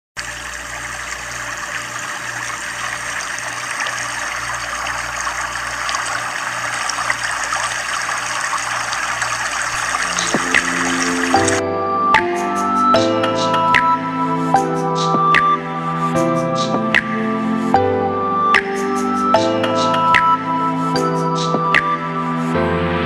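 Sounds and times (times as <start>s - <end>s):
floodwater rushing: 0.2s - 11.6s.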